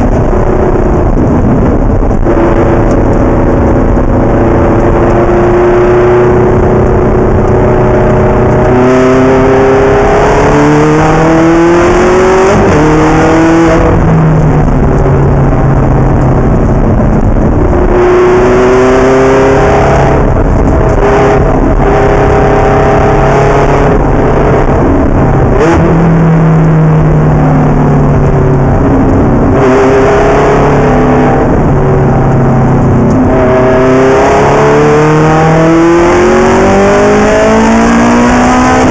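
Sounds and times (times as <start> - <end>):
race car engine at full throttle: 0.0 - 38.9
road and wind noise: 0.0 - 38.9.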